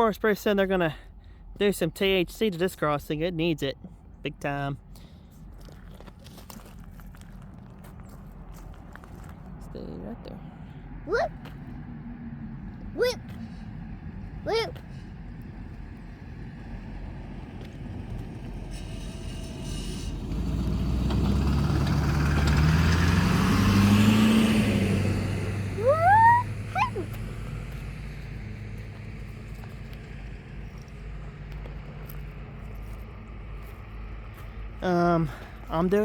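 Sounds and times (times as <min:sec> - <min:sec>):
motor vehicle passing: 0:10.5 - 0:34.8
person whooping: 0:25.8 - 0:27.1.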